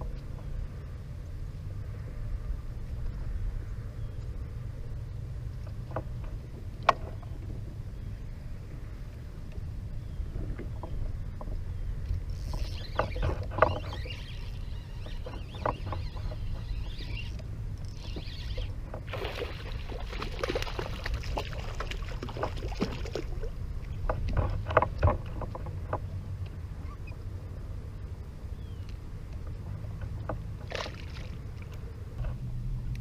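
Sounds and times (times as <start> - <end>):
wind rumble on microphone: 0.0 - 33.0
knocks and clicks against hull: 5.6 - 7.6, 10.3 - 19.2, 20.0 - 27.1, 28.8 - 33.0
water splashing: 18.0 - 25.6, 30.6 - 31.8.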